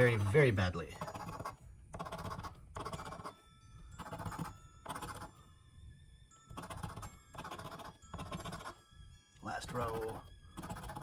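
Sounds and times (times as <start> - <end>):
lottery ticket being scratched: 0.0 - 3.4, 9.7 - 11.0.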